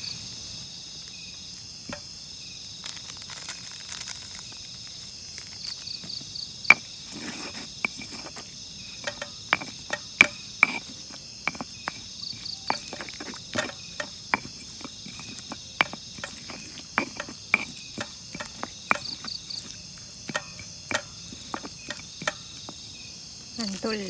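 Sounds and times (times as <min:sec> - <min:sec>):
crickets droning: 0:00.0 - 0:24.0
pestle knocking in stone mortar: 0:06.7 - 0:22.8.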